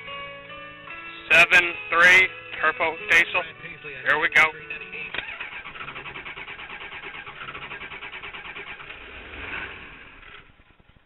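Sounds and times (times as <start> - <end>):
starter cranking diesel engine: 4.1 - 11.0.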